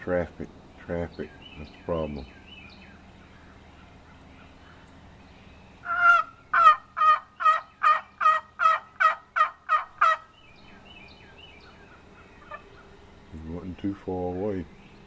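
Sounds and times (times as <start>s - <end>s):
turkey box call yelps: 5.8s - 10.3s, 11.5s - 12.9s.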